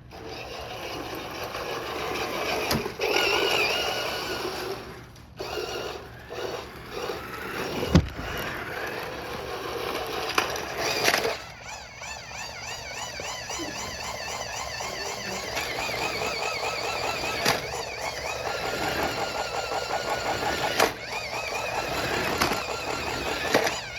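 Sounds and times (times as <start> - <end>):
toy car motor whine: 0.0 - 23.9
wheels rolling on hard floor: 6.0 - 23.9.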